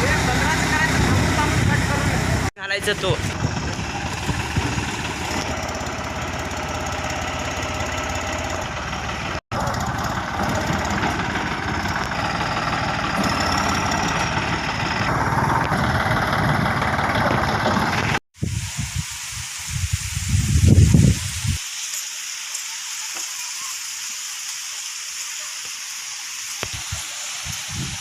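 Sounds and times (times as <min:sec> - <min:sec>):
tractor diesel engine running: 0:00.0 - 0:18.8.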